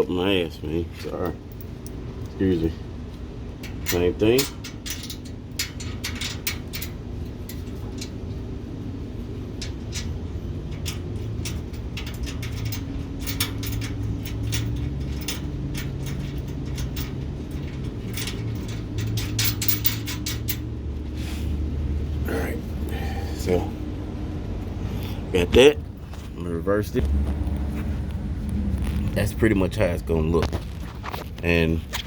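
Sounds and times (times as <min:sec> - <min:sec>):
steady low hum: 0:00.0 - 0:32.0
metal hardware clinking: 0:03.6 - 0:20.8.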